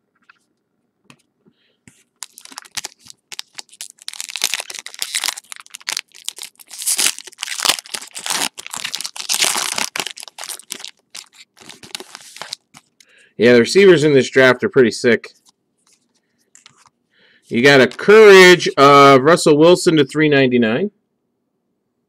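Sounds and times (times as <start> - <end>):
plastic wrapper tearing and crinkling: 2.2 - 12.9.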